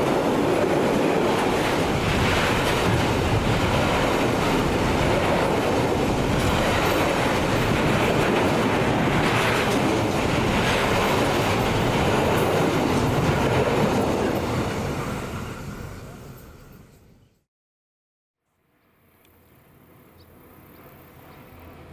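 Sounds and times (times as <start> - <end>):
train wheels on rails: 0.0 - 17.2.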